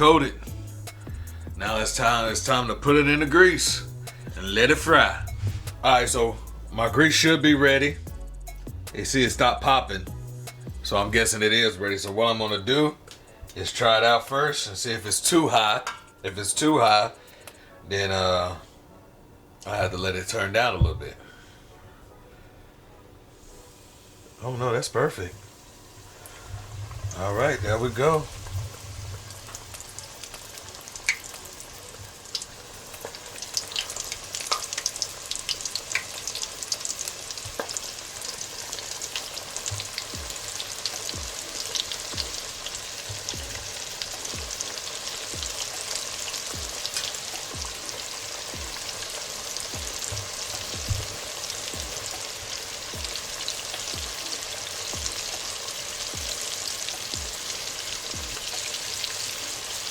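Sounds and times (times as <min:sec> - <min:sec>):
chicken wings frying in oil: 0:00.0 - 0:07.9, 0:23.8 - 0:59.9.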